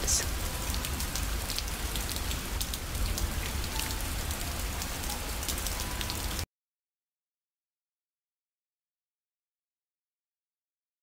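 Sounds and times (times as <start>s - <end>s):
steady rain: 0.0s - 6.5s.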